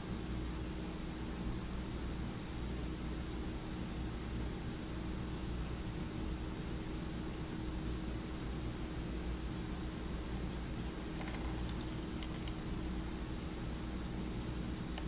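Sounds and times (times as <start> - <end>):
steady hiss with low hum: 0.0 - 15.0.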